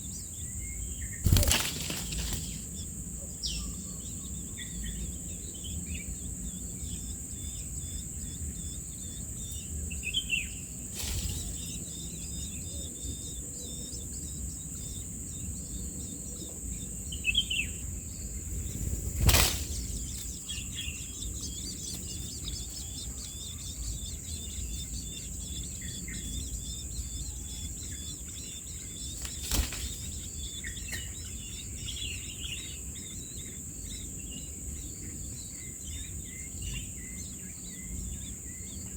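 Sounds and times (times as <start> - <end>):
small birds chirping: 0.0 - 38.9
bird falling calls: 1.2 - 2.9.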